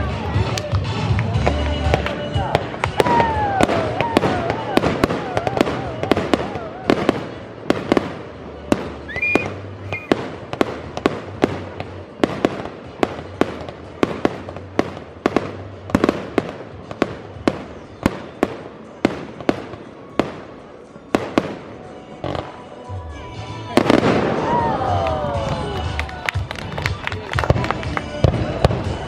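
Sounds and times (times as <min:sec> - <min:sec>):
fireworks bursting: 0:00.0 - 0:22.7, 0:23.8 - 0:29.0
firework whistle: 0:02.4 - 0:10.3.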